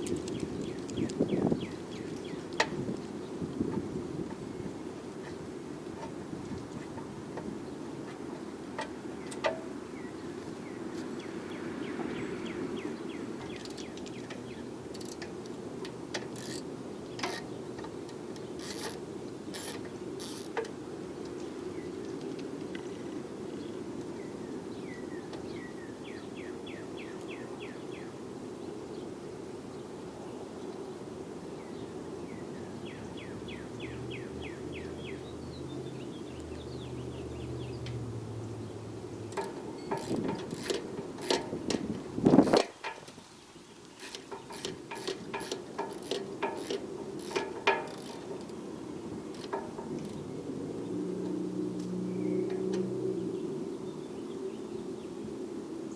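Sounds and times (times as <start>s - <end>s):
tools and metal parts clinking: 39.3s - 43.2s, 44.0s - 48.6s
rapid high ticks: 43.9s - 48.6s.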